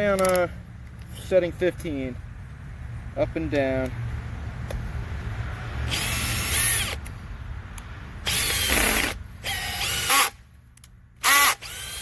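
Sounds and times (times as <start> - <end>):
drill driving screw into wood: 5.9 - 7.0, 8.2 - 10.4, 11.2 - 12.0.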